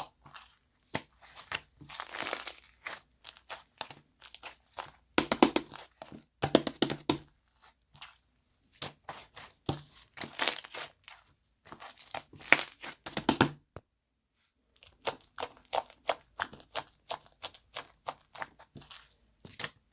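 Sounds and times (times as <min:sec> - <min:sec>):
slime crackling and popping: 0:00.0 - 0:07.3.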